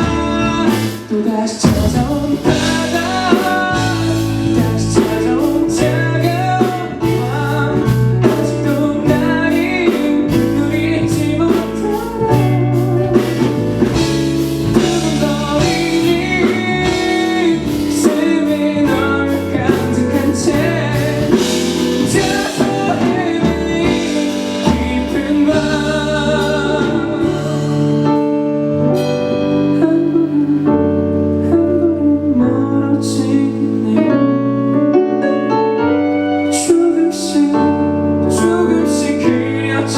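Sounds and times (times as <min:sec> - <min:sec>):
drum hits: 0:00.0 - 0:28.3
live band playing pop ballad: 0:00.0 - 0:39.9
man singing: 0:00.0 - 0:39.9.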